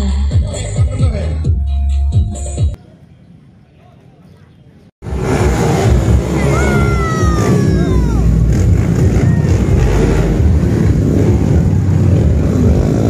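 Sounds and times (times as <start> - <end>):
dirt bike engine revving: 5.0 - 13.0.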